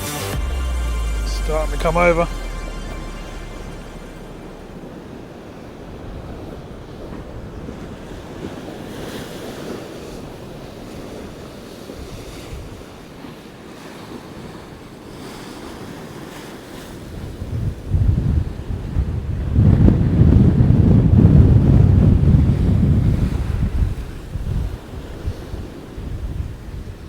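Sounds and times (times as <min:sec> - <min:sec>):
wind buffeting microphone: 0:17.4 - 0:24.8.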